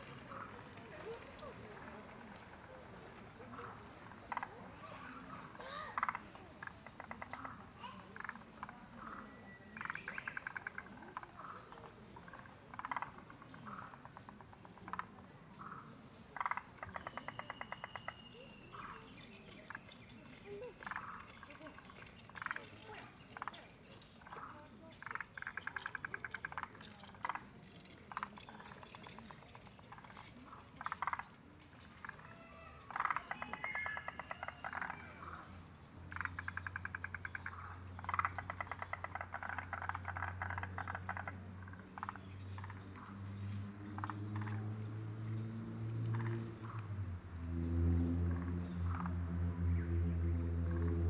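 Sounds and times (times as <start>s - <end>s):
bird trills: 4.8s - 41.3s
low droning hum: 46.6s - 51.0s.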